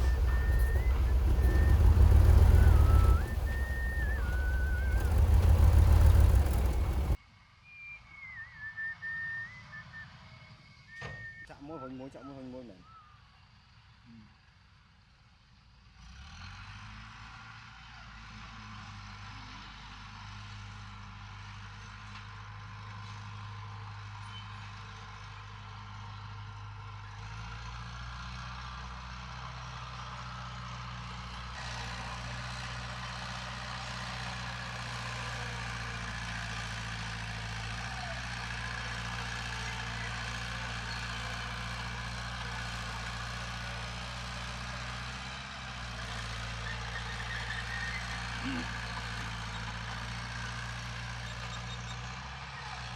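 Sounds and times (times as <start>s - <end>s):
heavy diesel engine running: 0.0s - 7.2s.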